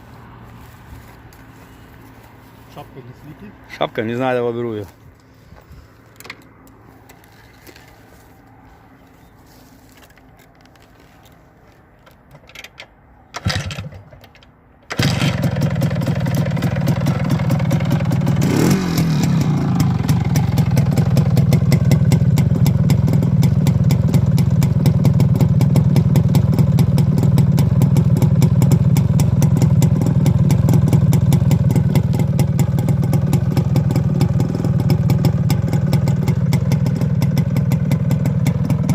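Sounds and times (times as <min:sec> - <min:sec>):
two-stroke motorcycle engine starting: 0:12.4 - 0:38.9.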